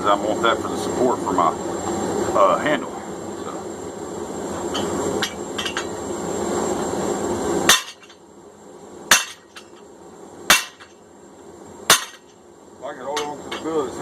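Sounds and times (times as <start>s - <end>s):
hammer striking hot steel: 4.7s - 6.0s, 7.7s - 8.2s, 9.1s - 9.8s, 10.5s - 11.0s, 11.9s - 12.4s, 13.1s - 13.8s.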